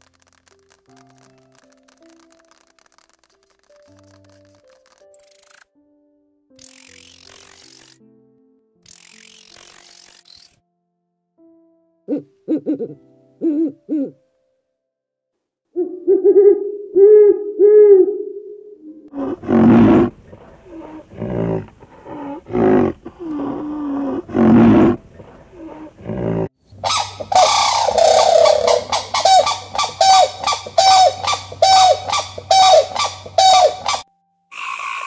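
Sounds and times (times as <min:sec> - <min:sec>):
clicks: 0:00.0 - 0:05.7
owl hooting: 0:15.8 - 0:35.0
loud animal cries: 0:25.6 - 0:35.0
fast repeating animal calls: 0:26.8 - 0:35.0.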